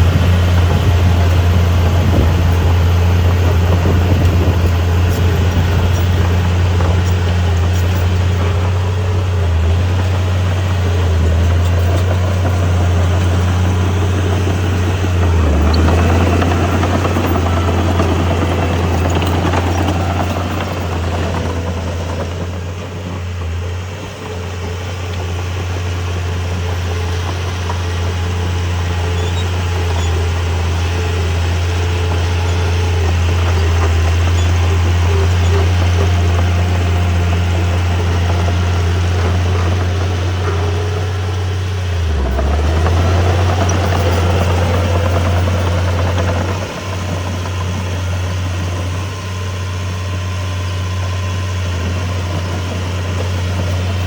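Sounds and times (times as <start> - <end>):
heavy diesel engine droning: 0.0 - 54.0.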